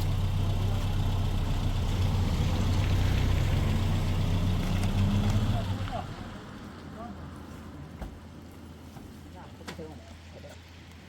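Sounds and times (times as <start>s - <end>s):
engine idling: 0.0s - 6.3s.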